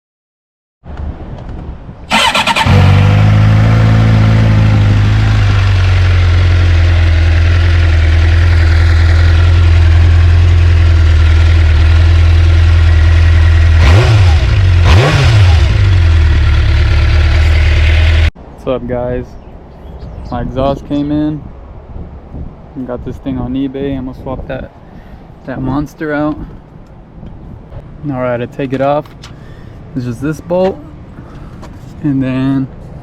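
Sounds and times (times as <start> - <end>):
motorcycle starter cranking: 2.1 - 3.0
motorcycle engine idling: 4.5 - 18.3.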